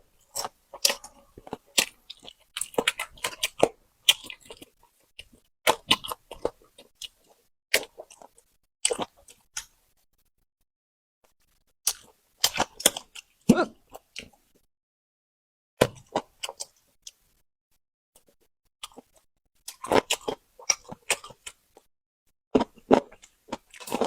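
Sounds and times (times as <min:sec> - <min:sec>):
chewing and biting food: 0:00.2 - 0:09.8, 0:11.5 - 0:14.4, 0:15.8 - 0:17.4, 0:18.2 - 0:21.9, 0:22.6 - 0:24.0.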